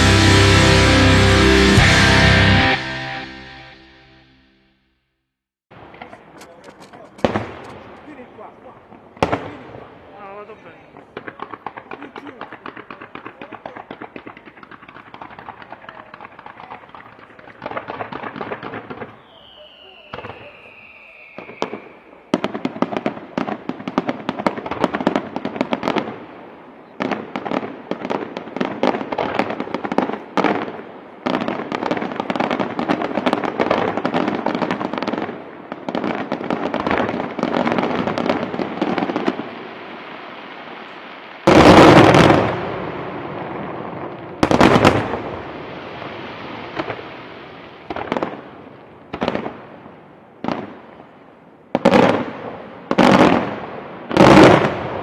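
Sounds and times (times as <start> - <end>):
rapid crackling firework bangs: 5.8 - 10.1, 11.0 - 51.0, 51.7 - 55.0
falling firework whistle: 19.0 - 22.4.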